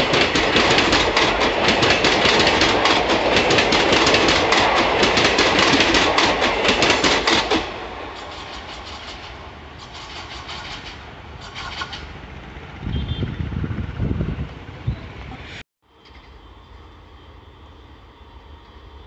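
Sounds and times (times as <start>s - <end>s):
train wheels clattering over rail joints: 0.0s - 12.2s
low rumbling surges: 0.0s - 15.6s.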